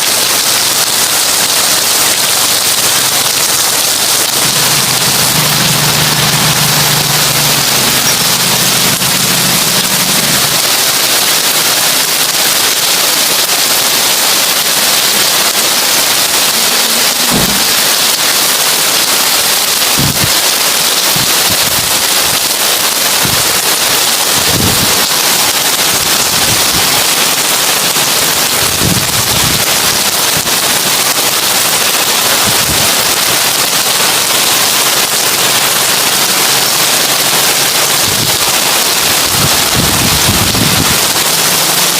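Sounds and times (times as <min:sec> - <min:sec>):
heavy rain on a tin roof: 0:00.0 - 0:41.9
dull low thumps: 0:17.3 - 0:17.8.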